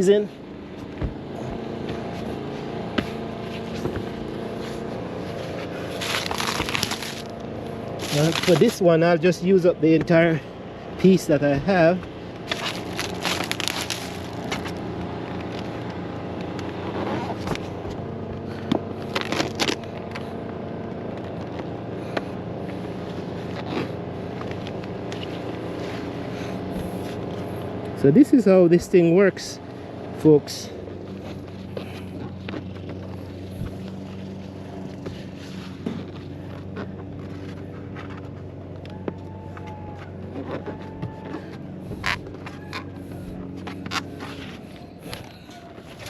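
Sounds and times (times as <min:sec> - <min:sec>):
steady motor hum: 0:00.0 - 0:46.0
roofing sheet crinkling and crackling: 0:04.6 - 0:08.8, 0:12.4 - 0:14.8.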